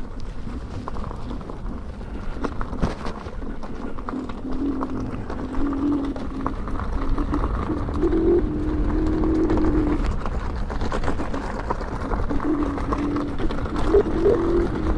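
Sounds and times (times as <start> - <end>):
tyre crackling over gravel: 0.0 - 14.9
wind rumble on microphone: 0.0 - 14.9.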